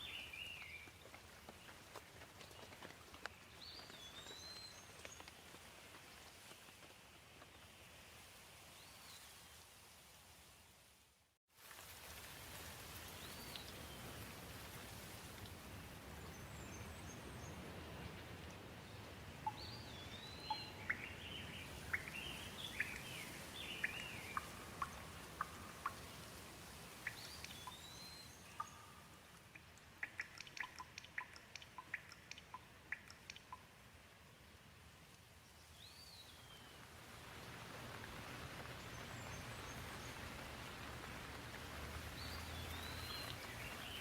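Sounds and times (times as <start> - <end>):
gentle steady rain: 0.0 - 44.0
sharp ticks and drips: 11.6 - 16.4, 19.4 - 34.4, 37.0 - 44.0
birds chirping: 42.2 - 44.0
birds twittering: 42.2 - 44.0.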